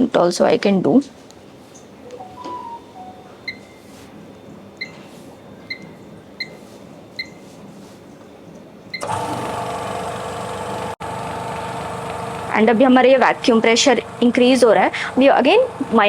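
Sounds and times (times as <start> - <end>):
short high beeps: 2.1 - 3.8
vacuum pump humming: 9.0 - 16.0.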